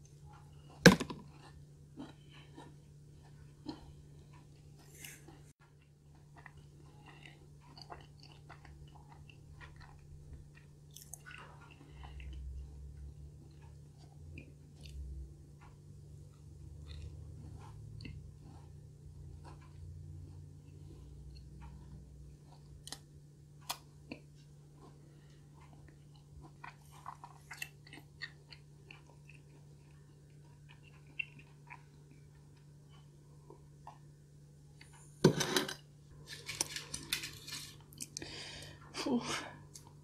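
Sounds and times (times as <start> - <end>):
person chewing cookie: 0.0 - 35.2, 36.1 - 38.9
faint low hum: 0.0 - 40.0
aluminium foil pan crinkling: 36.2 - 37.9.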